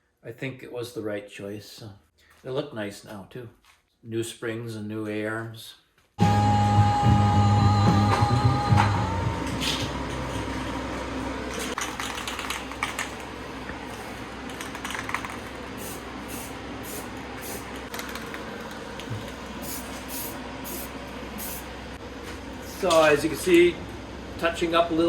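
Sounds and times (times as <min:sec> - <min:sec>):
aerosol spray can hissing in bursts: 0:15.8 - 0:17.8, 0:19.6 - 0:21.7.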